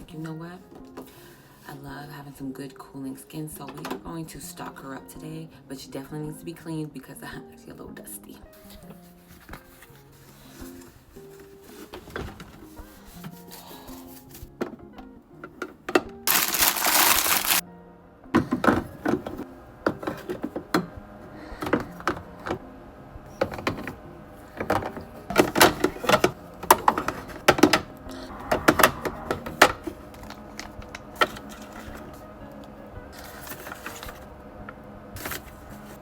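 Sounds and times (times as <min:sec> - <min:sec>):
background music: 0:00.0 - 0:36.0
bottles and jars clicking and knocking: 0:23.4 - 0:32.2.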